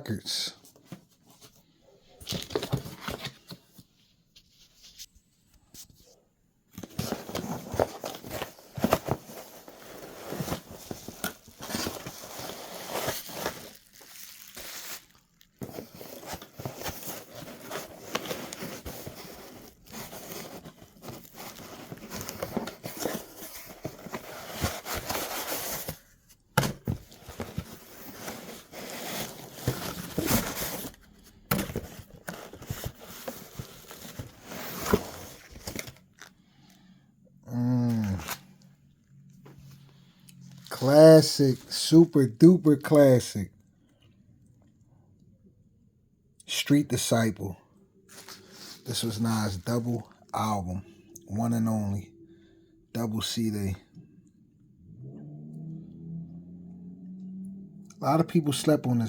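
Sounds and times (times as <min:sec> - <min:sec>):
packaging crinkling and tearing: 0:06.9 - 0:26.1.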